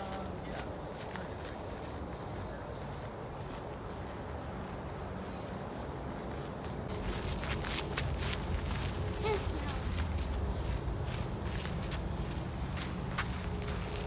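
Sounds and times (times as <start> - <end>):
insects chirring: 0.0 - 14.0
low outdoor rumble: 6.9 - 14.0.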